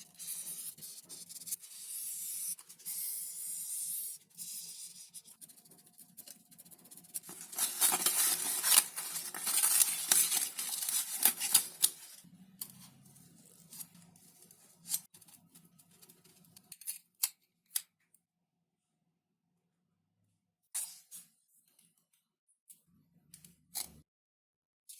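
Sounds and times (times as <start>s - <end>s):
foam sheet rustling: 7.2s - 12.2s.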